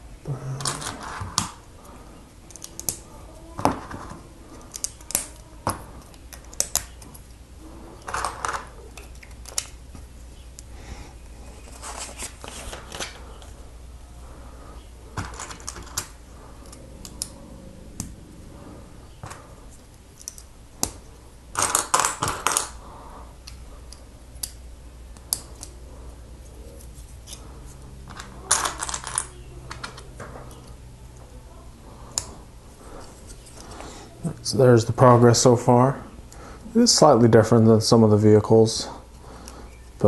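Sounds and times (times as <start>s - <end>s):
pieces clattering: 21.6s - 22.8s, 28.1s - 30.3s.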